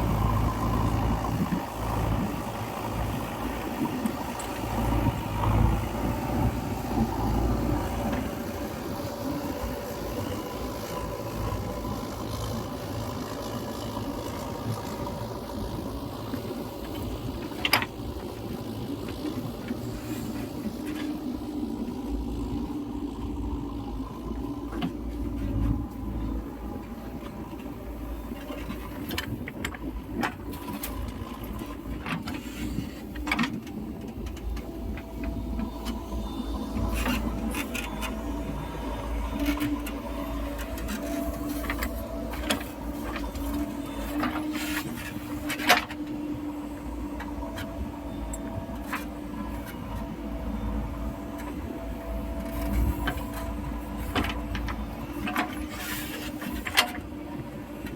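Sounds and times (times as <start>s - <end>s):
diesel engine running under load: 0.0s - 57.9s.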